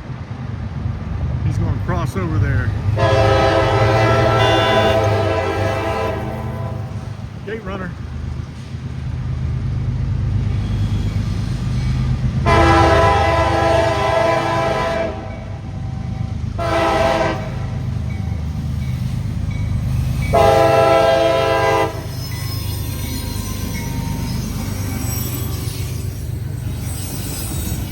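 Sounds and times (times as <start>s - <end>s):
train rumble: 0.0s - 27.9s
locomotive air horn blasts: 3.0s - 7.1s, 12.4s - 15.3s, 16.6s - 17.8s, 20.3s - 22.2s.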